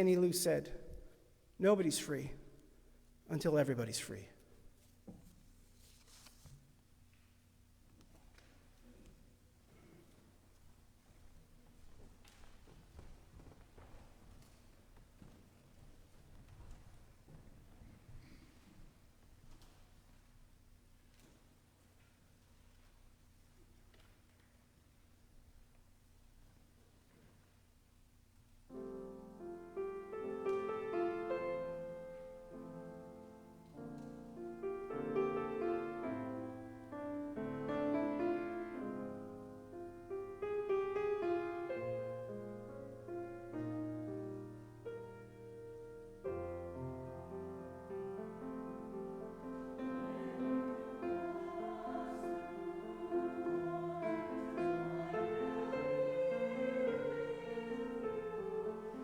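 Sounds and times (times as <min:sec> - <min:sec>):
slow piano chords: 0:28.7 - 0:59.0.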